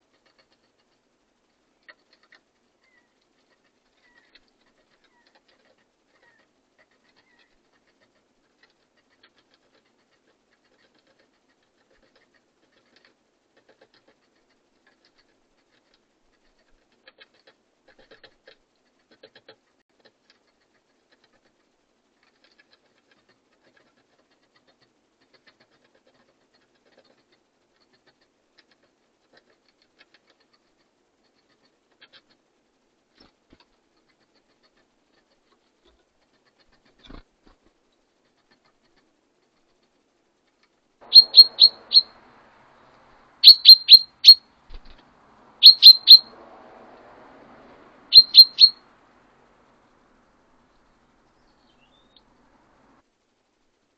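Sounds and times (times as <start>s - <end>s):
birds pecking at a feeder: 0.0s - 53.0s
faint high bird chirps: 2.8s - 3.2s, 4.0s - 4.4s, 6.1s - 7.6s, 41.0s - 42.4s, 43.4s - 45.0s, 45.6s - 46.4s, 48.1s - 48.9s, 51.3s - 52.4s.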